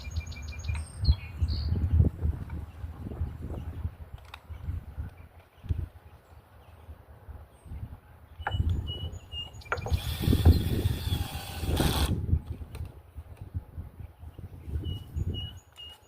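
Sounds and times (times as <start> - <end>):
birds chirping faintly: 0.0 - 13.3
power tool whirring and rasping: 9.7 - 12.2.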